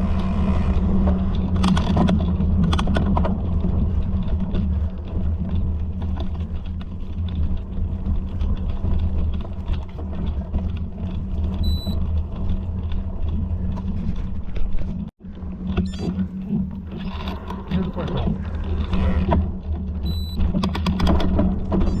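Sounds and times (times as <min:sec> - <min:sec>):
low rumble: 0:00.0 - 0:22.0
high electronic beep: 0:11.6 - 0:12.0, 0:20.1 - 0:20.4.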